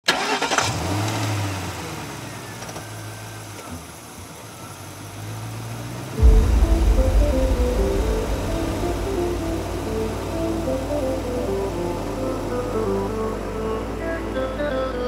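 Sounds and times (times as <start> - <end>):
loud background music: 6.2 - 13.6.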